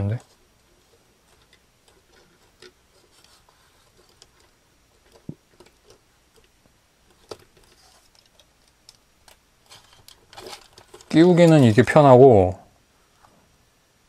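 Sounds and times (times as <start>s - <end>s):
plastic parts clicking and tapping: 1.3s - 11.7s.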